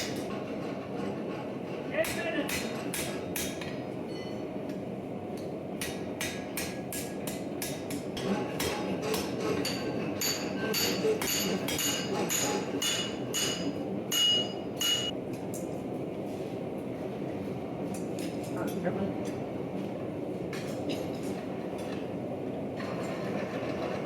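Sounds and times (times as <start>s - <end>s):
hammer striking steel on anvil: 2.0s - 4.4s, 5.8s - 15.1s.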